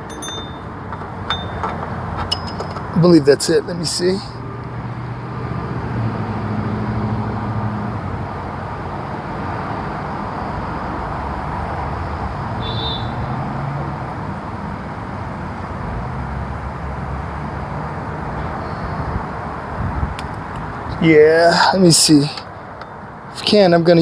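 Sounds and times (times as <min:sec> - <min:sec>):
outdoor background hiss: 0:00.0 - 0:05.4, 0:19.2 - 0:24.0.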